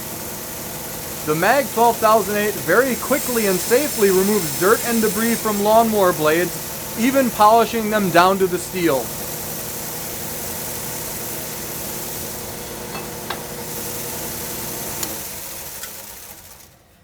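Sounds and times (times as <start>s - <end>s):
wire brushes whirring: 1.2s - 9.5s.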